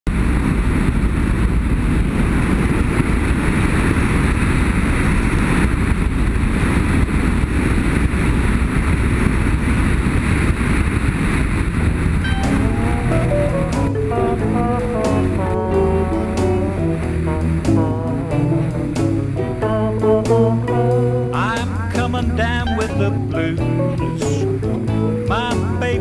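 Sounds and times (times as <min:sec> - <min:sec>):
wind noise on microphone: 0:00.1 - 0:26.0.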